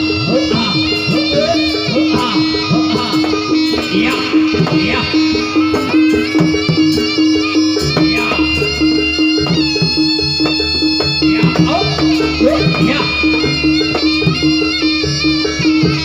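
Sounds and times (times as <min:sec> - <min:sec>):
traditional dance music with heavy bass: 0:00.0 - 0:16.0.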